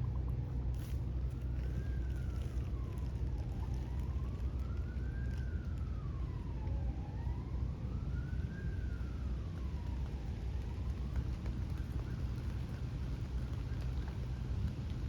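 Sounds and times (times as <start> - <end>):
steady low rumble: 0.0 - 5.0
emergency vehicle siren wailing: 0.6 - 14.7.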